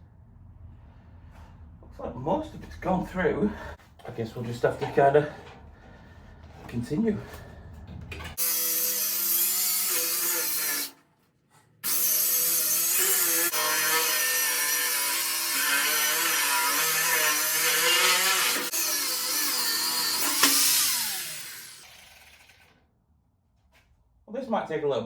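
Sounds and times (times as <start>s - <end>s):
angle grinder grinding metal: 8.4s - 11.0s, 11.8s - 22.7s
grinder spinning down whine: 11.8s - 22.7s.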